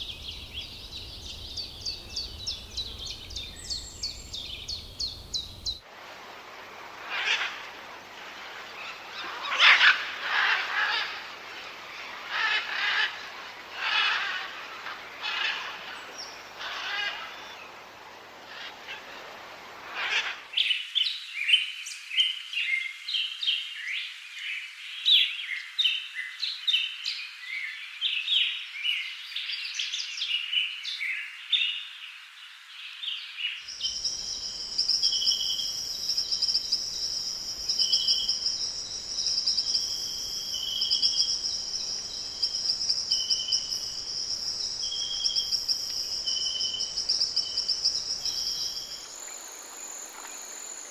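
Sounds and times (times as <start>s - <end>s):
high insect trill: 0.0s - 5.8s, 33.7s - 50.9s
whistled bird notes: 0.0s - 5.8s, 33.7s - 50.9s
wild birds chirping: 0.0s - 5.9s, 6.9s - 20.8s, 33.2s - 50.9s.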